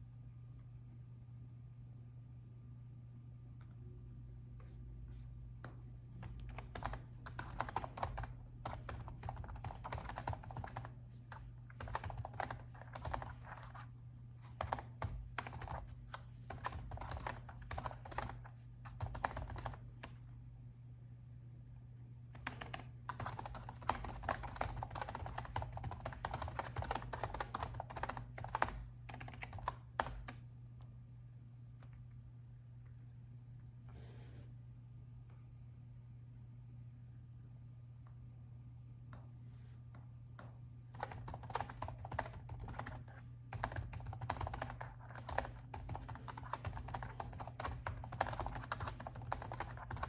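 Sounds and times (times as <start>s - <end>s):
steady low hum: 0.0s - 50.0s
laptop keyboard typing: 6.2s - 20.2s, 22.4s - 30.4s, 40.9s - 50.0s.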